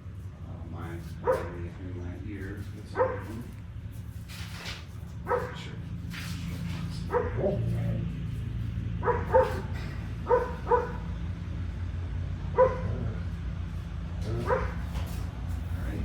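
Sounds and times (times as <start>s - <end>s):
dog barking: 1.2s - 1.8s, 2.9s - 3.6s, 5.2s - 5.8s, 6.9s - 7.9s, 9.0s - 11.2s, 12.5s - 13.3s, 14.2s - 15.0s.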